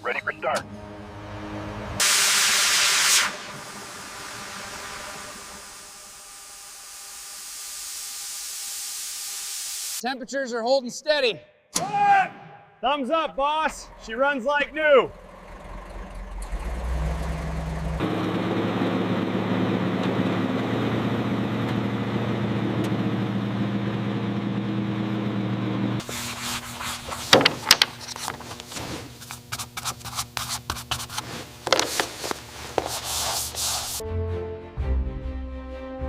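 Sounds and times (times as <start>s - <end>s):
machine running: 0.6s - 9.9s, 13.7s - 20.0s
sharp scraping and rubbing: 26.0s - 34.0s.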